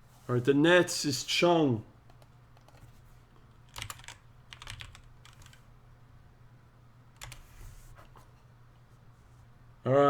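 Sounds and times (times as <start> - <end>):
computer keyboard typing: 2.1 - 2.9, 3.6 - 5.6, 7.2 - 7.5.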